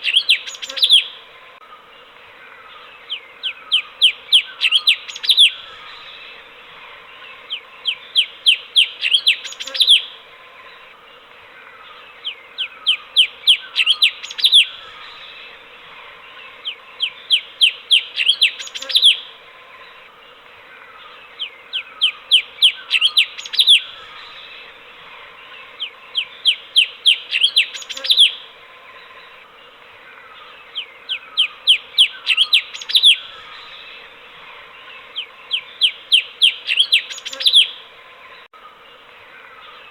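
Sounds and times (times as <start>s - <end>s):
bird whistling song: 0.0s - 1.2s, 3.1s - 6.3s, 7.5s - 10.2s, 12.2s - 15.3s, 16.6s - 19.3s, 21.4s - 24.6s, 25.8s - 28.5s, 30.7s - 34.0s, 35.1s - 37.8s
faint steady hum: 0.0s - 39.9s.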